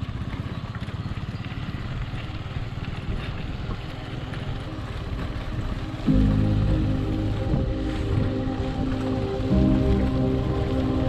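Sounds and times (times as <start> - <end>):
small engine running: 0.0 - 6.3.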